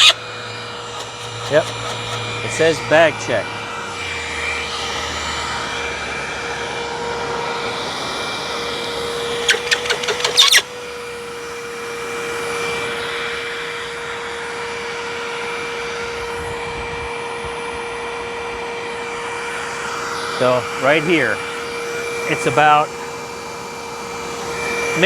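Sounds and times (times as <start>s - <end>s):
upright vacuum running: 0.0s - 25.0s
rattling clicks: 1.0s - 2.4s, 9.5s - 10.7s.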